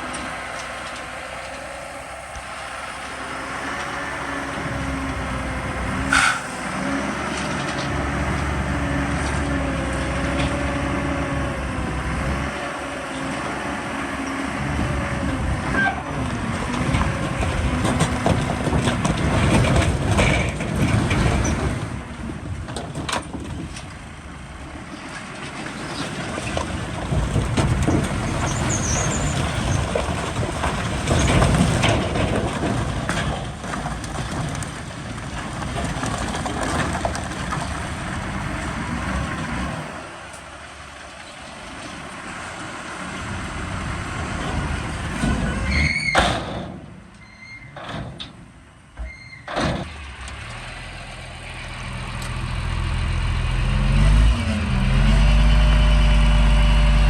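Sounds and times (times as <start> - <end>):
diesel earthmoving machinery: 0.0 - 57.0
short high squeal: 6.1 - 6.6, 45.6 - 46.2, 47.2 - 47.8, 49.0 - 49.5.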